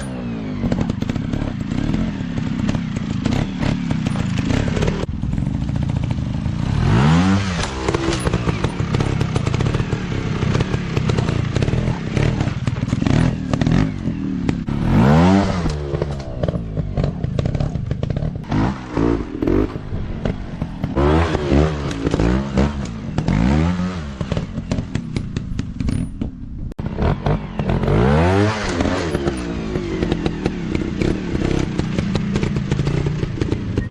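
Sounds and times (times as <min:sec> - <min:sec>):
dirt bike engines revving: 0:00.0 - 0:26.0, 0:26.8 - 0:33.9.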